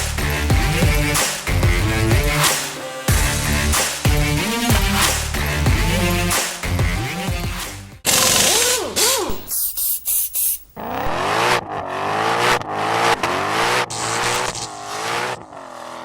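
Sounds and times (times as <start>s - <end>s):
car engine revving: 10.8s - 16.0s.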